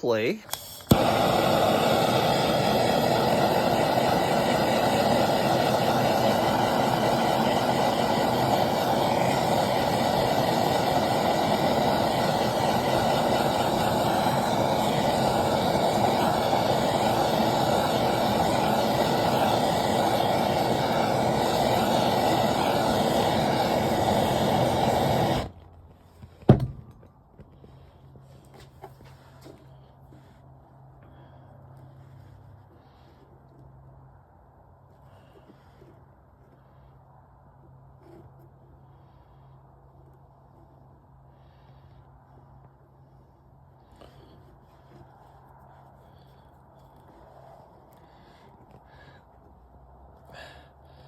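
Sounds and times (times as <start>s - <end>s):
blowtorch flame: 0.2s - 25.7s.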